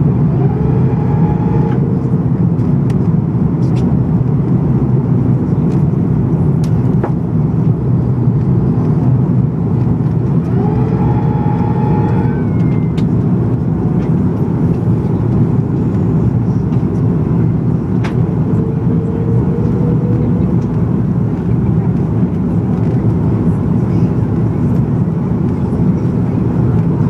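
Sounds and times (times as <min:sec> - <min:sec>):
airplane cabin roar: 0:00.0 - 0:27.0
faint humming tone: 0:10.4 - 0:22.0.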